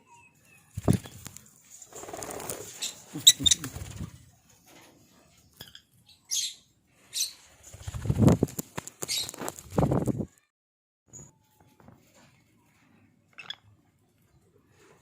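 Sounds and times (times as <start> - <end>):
birds fluttering wings: 0.7 - 5.0, 7.5 - 10.4.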